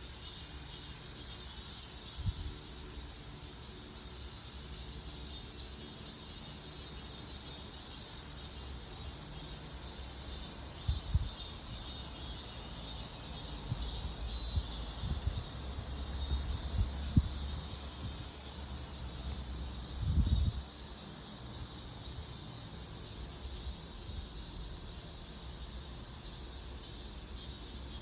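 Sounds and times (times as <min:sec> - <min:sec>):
insects chirring: 0:00.0 - 0:28.0.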